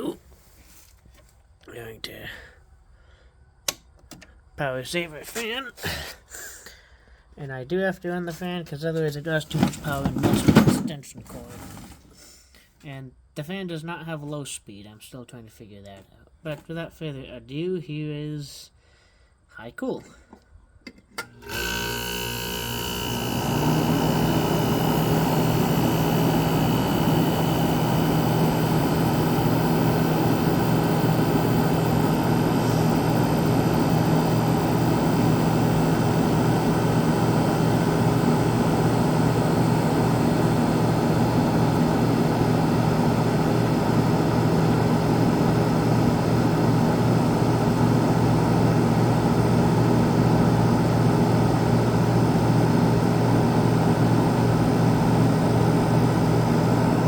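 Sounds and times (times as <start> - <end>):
compressor humming: 9.5 - 10.8, 21.2 - 57.0
air conditioner fan rushing air: 22.6 - 57.0.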